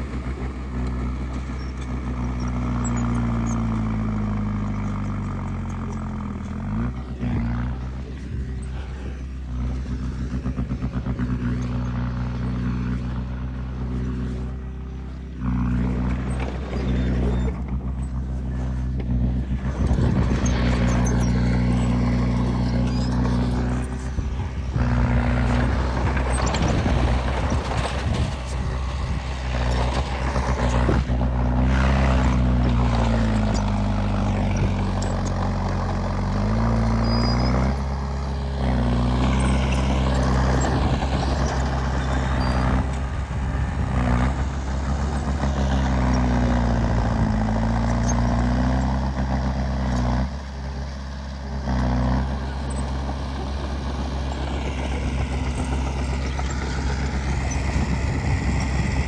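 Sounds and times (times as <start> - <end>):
heavy machinery diesel engine: 0.0 - 59.0
knocks and rattles: 15.6 - 36.6.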